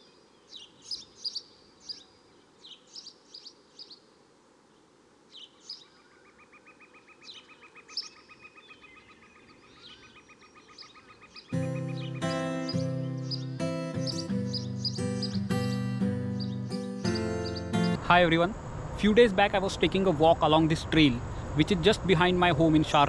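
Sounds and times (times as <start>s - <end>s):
low background hiss: 0.0s - 8.4s, 17.6s - 23.0s
high bird chirps: 9.8s - 18.0s.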